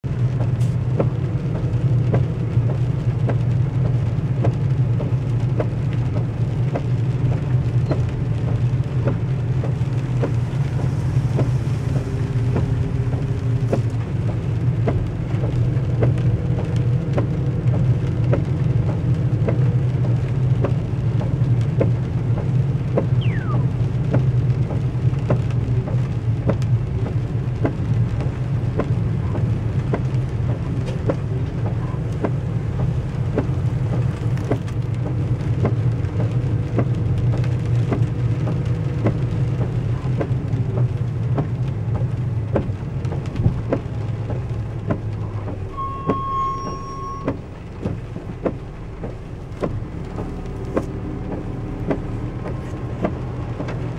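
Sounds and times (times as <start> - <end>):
heavy rain drumming on car roof: 0.0 - 53.9
low hum of moving car: 0.0 - 53.9
brief steady beep: 23.2 - 23.6.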